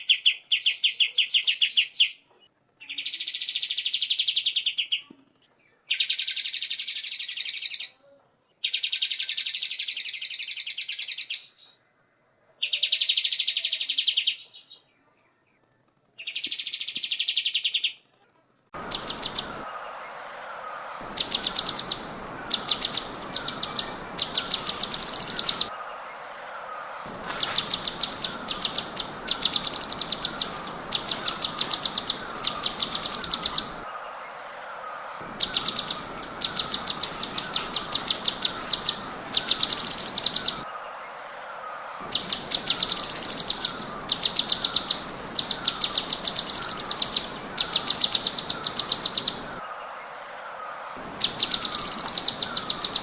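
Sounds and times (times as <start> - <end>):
bird rapid sharp notes: 18.8 - 25.8, 26.7 - 33.9
songbird trilling: 18.8 - 41.0, 42.0 - 49.6, 51.0 - 53.0
recording hiss: 18.8 - 53.0
soft low bird chirps: 18.8 - 53.0.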